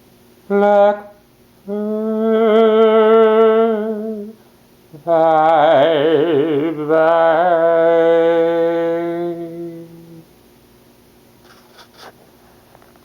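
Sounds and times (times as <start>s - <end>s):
person singing long note: 0.5s - 4.4s, 5.0s - 10.3s.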